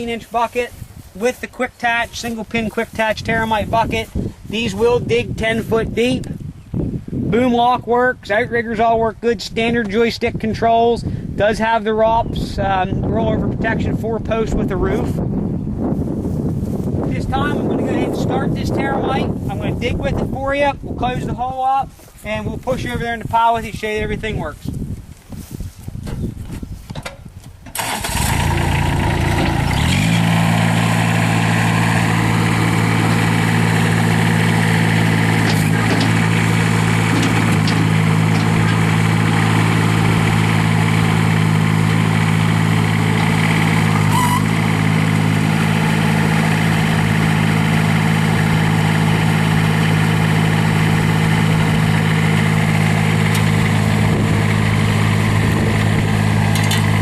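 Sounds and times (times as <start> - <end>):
diesel engine starting and running: 26.8 - 57.0.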